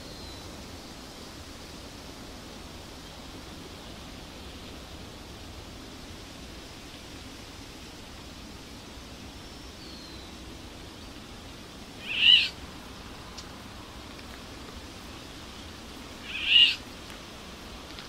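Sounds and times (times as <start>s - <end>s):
steady hiss: 0.0s - 18.0s
bird loud short calls: 12.0s - 12.6s, 16.2s - 16.8s.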